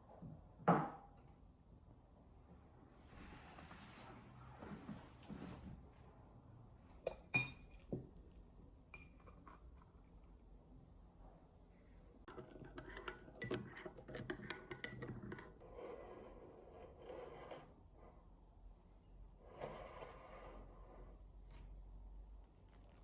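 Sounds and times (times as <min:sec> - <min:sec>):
glass clinking: 0:07.0 - 0:08.0.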